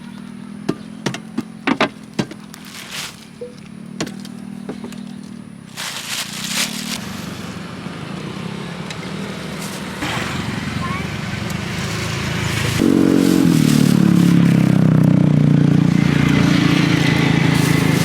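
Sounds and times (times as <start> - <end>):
small engine running: 4.0 - 18.0
hissing burst: 12.3 - 14.8.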